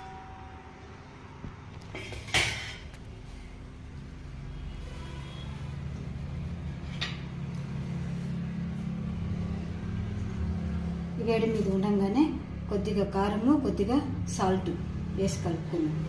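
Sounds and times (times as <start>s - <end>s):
steady low hum: 0.0s - 16.0s
kitchen utensils clinking: 2.0s - 3.0s.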